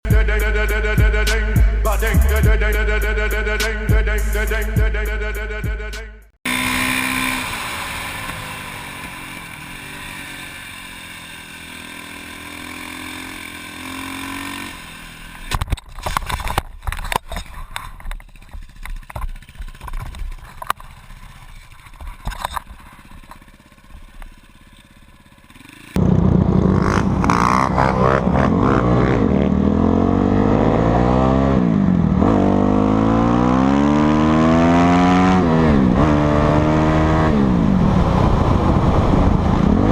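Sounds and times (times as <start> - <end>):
motorcycle engine revving: 0.1 - 39.9
motorcycle engines running: 6.5 - 39.9
clattering impacts and scrapes: 15.5 - 26.2.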